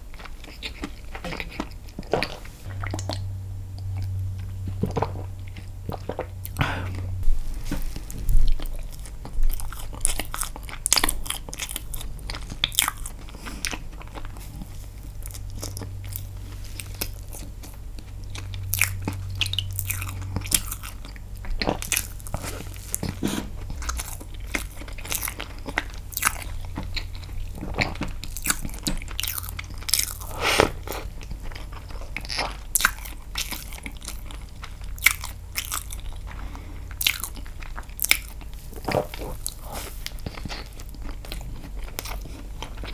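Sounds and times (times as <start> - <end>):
biting and chewing cake: 0.0 - 42.9.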